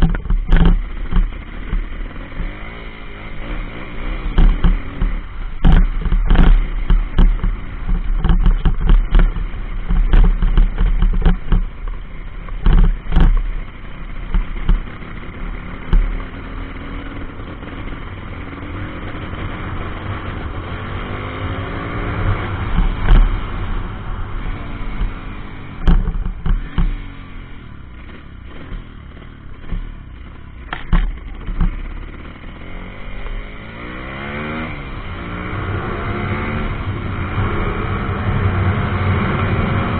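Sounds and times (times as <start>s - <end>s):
sharp knocks and clatter: 0.0s - 2.8s, 4.1s - 18.0s, 21.0s - 27.2s, 27.8s - 32.5s
pit bike engine revving: 0.0s - 39.9s.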